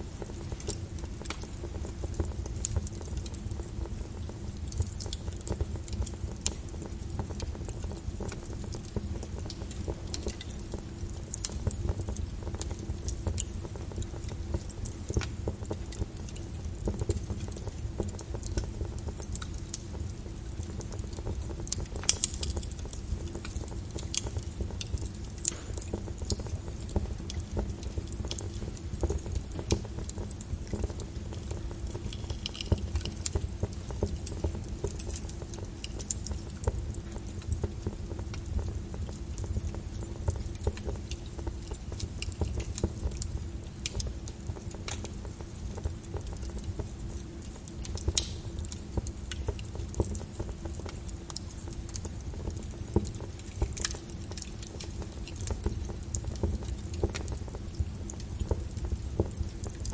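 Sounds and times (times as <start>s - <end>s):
fire crackling and popping: 0.0s - 59.9s.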